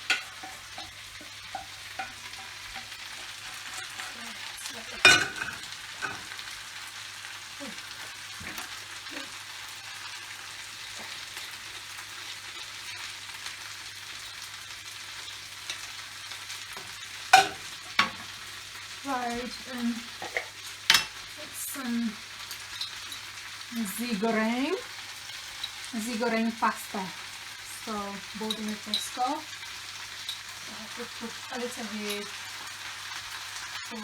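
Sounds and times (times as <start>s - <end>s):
utensil knocking and scraping pan: 0.0s - 4.2s
stir fry sizzling in a pan: 0.0s - 34.0s.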